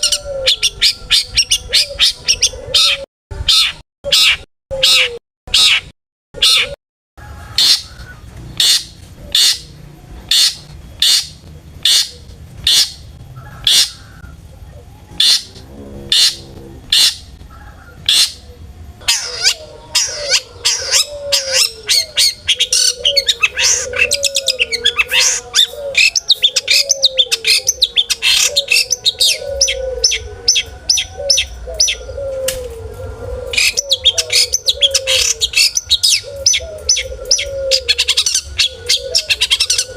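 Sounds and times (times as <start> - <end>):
bird chattering and warbling: 7.5 - 39.9
shrike singing sharp calls: 7.6 - 32.2.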